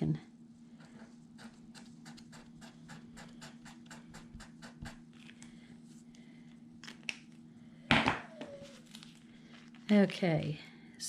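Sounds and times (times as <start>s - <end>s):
steady low hum: 0.0s - 11.0s
marker strokes on paper: 0.8s - 5.0s.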